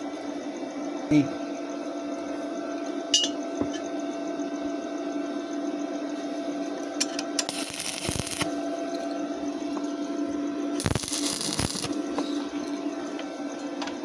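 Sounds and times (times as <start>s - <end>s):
steady electrical hum: 7.0s - 14.0s
hissing crackly burst: 7.5s - 8.5s, 10.8s - 12.0s.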